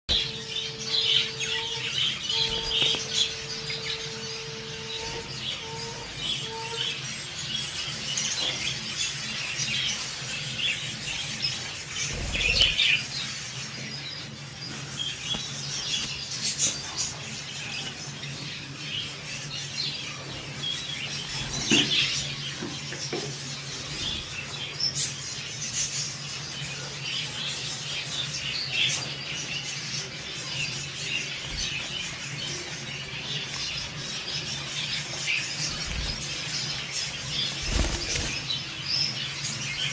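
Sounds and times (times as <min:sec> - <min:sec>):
budgerigars chirping: 0:00.1 - 0:26.5.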